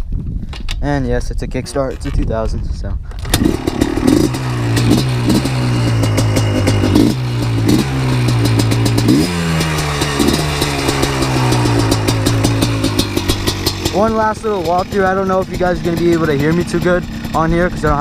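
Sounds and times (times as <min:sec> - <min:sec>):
engine throttle blips: 0:03.2 - 0:18.0
two-stroke engine idling: 0:03.3 - 0:18.0.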